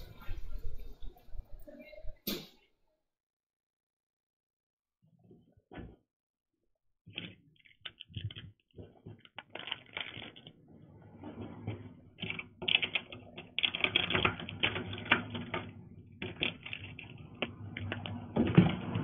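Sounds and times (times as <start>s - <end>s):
rapid irregular clicking: 7.1s - 19.0s.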